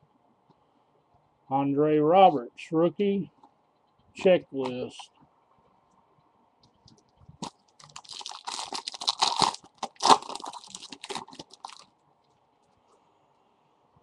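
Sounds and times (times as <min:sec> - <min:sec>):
foil wrapper crinkling: 0:07.4 - 0:11.9.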